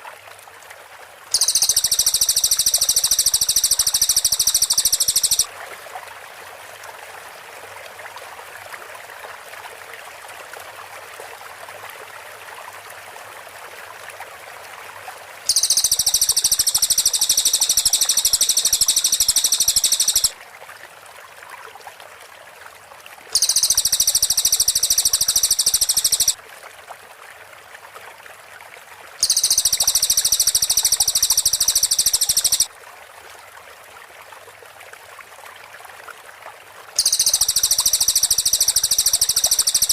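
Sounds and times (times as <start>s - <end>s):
songbird singing rapid high notes: 1.4s - 5.5s, 15.5s - 20.3s, 23.4s - 26.4s, 29.2s - 32.7s, 37.0s - 39.9s
steady background hiss: 1.4s - 5.5s, 15.5s - 20.3s, 23.4s - 26.4s, 29.2s - 32.7s.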